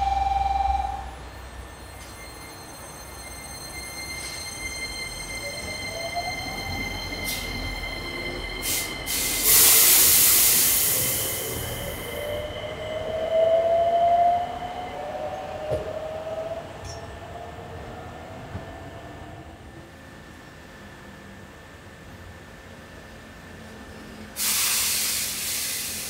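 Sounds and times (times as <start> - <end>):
train motor whine: 0.0 - 13.8
high squealing tones: 1.7 - 8.8
air hiss from train: 7.1 - 12.3, 24.3 - 26.0.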